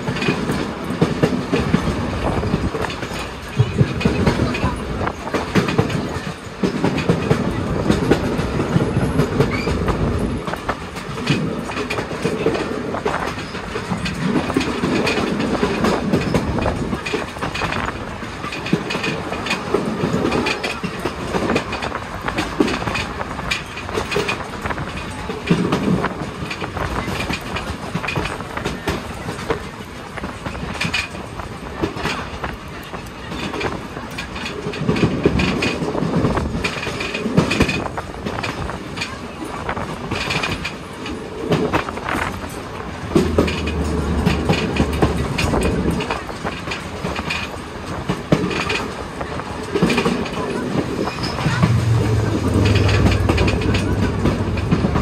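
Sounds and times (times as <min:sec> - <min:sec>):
irregular track clicks: 0:00.0 - 0:55.0
rumble of train wheels on rail: 0:00.0 - 0:55.0.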